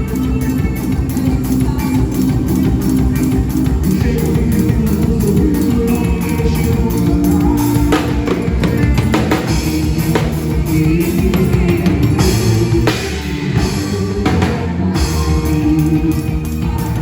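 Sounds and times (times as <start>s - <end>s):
band playing instrumental music: 0.0s - 17.0s
drums beating: 0.0s - 17.0s.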